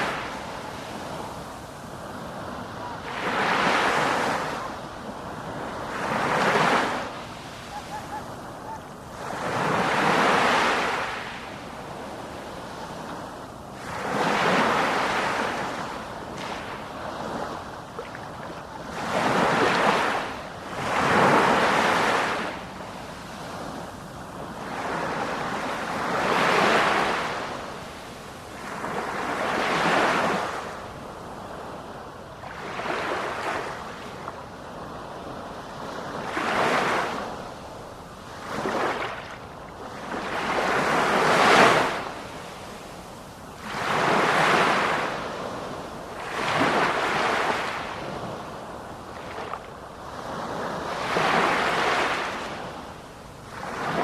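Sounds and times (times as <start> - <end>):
sea waves breaking: 0.0 - 28.0, 38.3 - 52.8.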